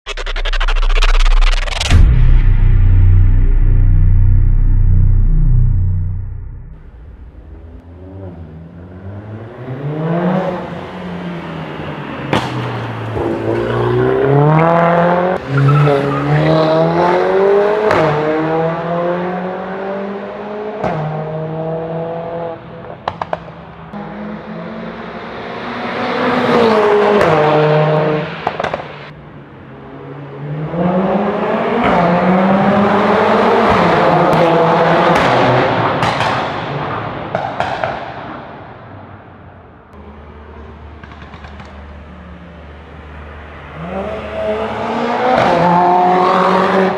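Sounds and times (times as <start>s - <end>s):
exhaust cracks: 0.0s - 7.8s.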